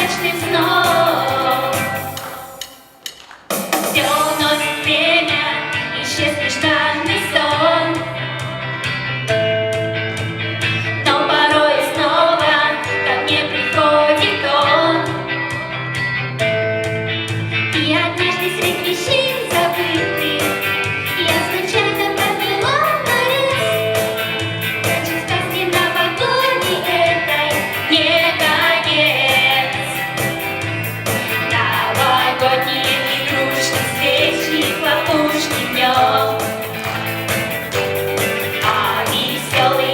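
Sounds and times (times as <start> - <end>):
person singing: 0.0 - 2.6, 3.9 - 8.2, 17.8 - 30.2, 31.3 - 39.9
instrumental accompaniment: 18.2 - 39.9.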